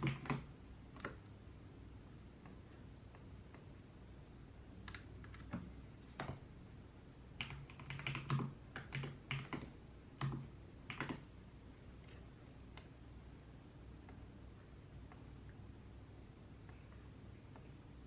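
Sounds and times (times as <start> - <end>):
typing on keyboard: 0.0 - 1.2, 4.8 - 6.4, 7.4 - 11.3
faint room hum: 0.0 - 18.0.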